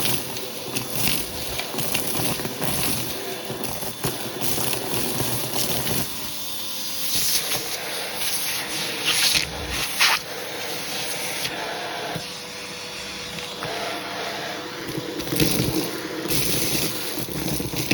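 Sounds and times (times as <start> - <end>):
vacuum cleaner suction hissing: 0.0 - 17.9
rushes of air: 9.0 - 11.0.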